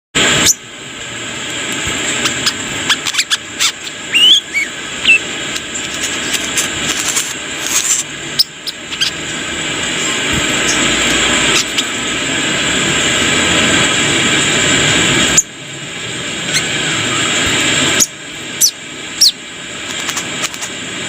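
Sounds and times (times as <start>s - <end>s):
bird chirping and whistling: 0.3s - 0.6s, 2.2s - 5.3s, 8.3s - 9.2s, 10.6s - 11.9s, 16.5s - 19.4s.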